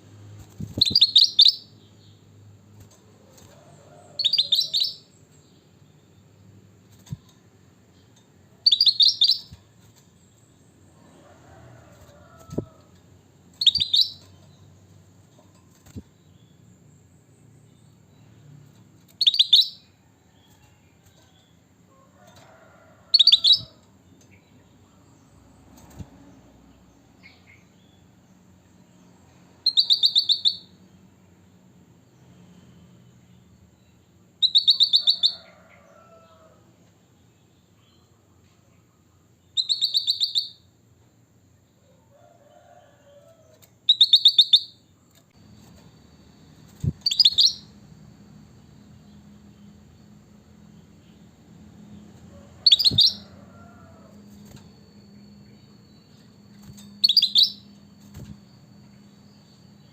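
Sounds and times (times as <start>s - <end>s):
bulbul calling in rapid phrases: 0.8s - 1.7s, 13.6s - 14.2s, 46.9s - 47.7s, 52.7s - 53.3s.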